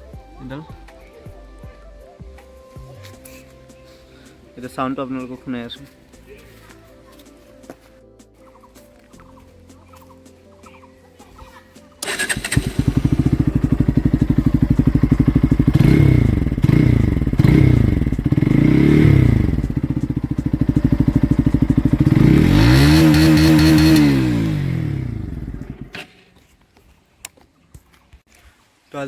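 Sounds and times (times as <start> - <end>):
motorcycle engine idling and revving: 12.0 - 26.4.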